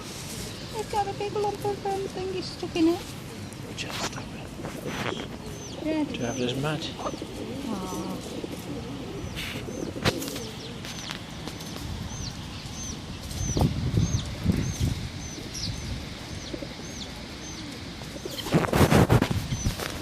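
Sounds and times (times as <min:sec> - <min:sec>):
small bird chirping: 0:00.7 - 0:18.7, 0:19.4 - 0:19.9
wing flapping: 0:17.7 - 0:20.0.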